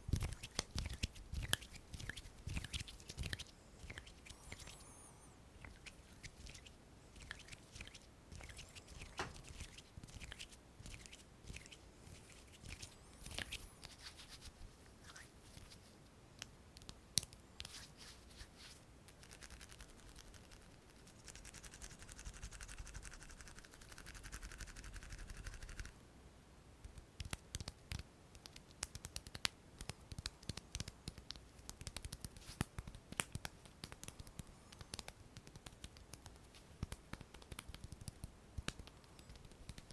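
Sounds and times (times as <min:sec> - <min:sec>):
quick finger taps and clicks: 0:00.1 - 0:04.8, 0:16.4 - 0:17.8, 0:26.8 - 0:39.9
hand rubbing: 0:00.2 - 0:16.0
hand scratches and taps: 0:26.8 - 0:39.9.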